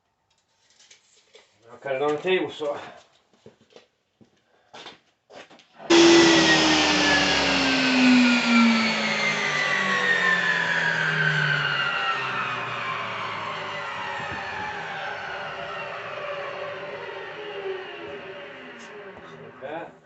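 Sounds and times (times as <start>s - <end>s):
table saw motor whine: 5.9s - 19.7s.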